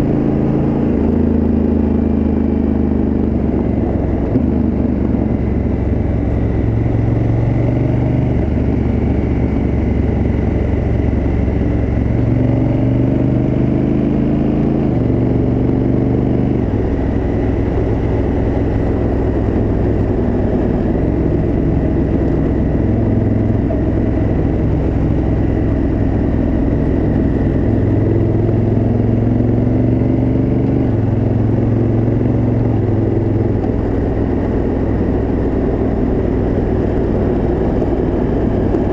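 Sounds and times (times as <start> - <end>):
motorcycle engine under load: 16.6 - 38.9.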